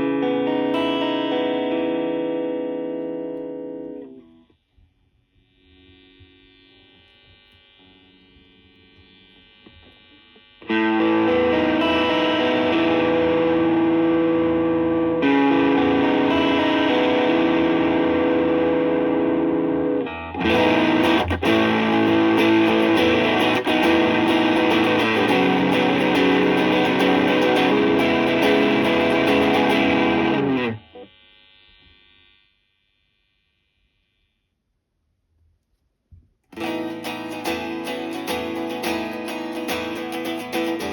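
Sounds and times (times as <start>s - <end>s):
overdriven electric guitar chords: 0.0s - 4.4s, 10.6s - 31.1s, 36.6s - 40.9s.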